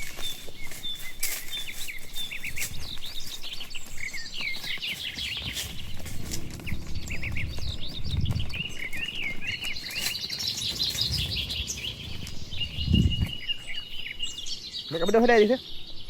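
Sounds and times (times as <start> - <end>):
small birds chirping: 0.0 - 16.0
low rumbling noise: 5.7 - 9.8.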